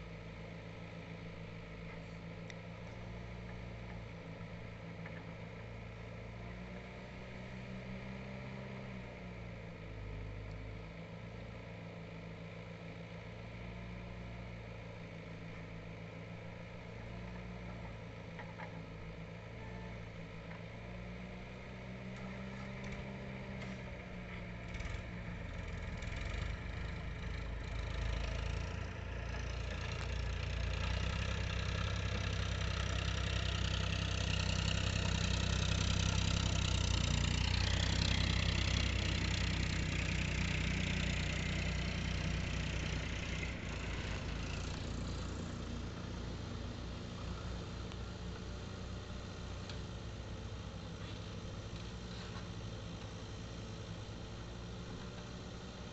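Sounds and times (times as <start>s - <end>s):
heavy vehicle diesel engine running: 14.2s - 55.9s.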